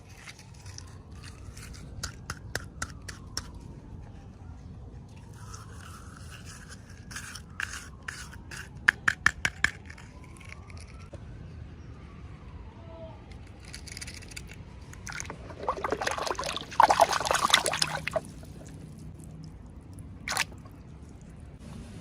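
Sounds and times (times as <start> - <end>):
plastic packaging scraping and rustling: 0.0 - 2.2.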